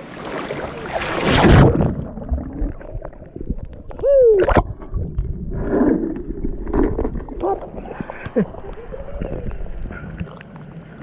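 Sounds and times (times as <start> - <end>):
gurgling water: 0.0 - 11.0
person splashing into water: 0.4 - 2.8.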